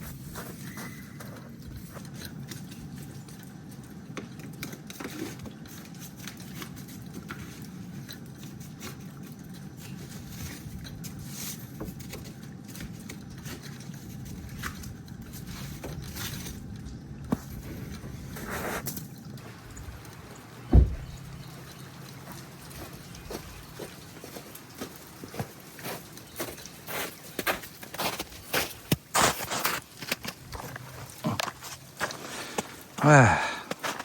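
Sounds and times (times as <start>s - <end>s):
ice scraper scraping ice off car: 28.0s - 30.4s.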